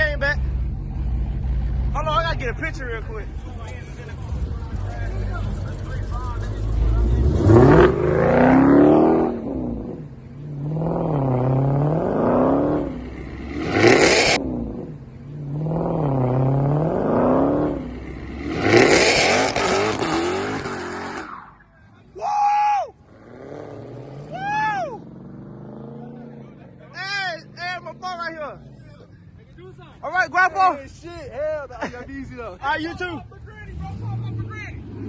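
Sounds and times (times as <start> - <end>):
car engine revving hard: 5.0 - 21.3, 23.1 - 24.4, 33.7 - 35.0.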